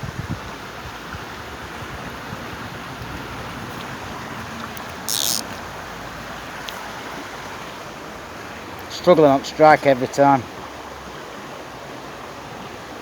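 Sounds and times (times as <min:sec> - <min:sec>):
river water rushing: 0:00.5 - 0:13.0
short sharp hiss: 0:05.1 - 0:05.5.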